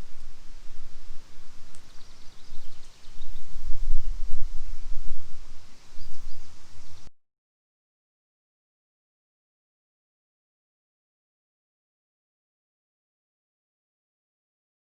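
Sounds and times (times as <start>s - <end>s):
wind gusting on microphone: 0.0s - 7.1s.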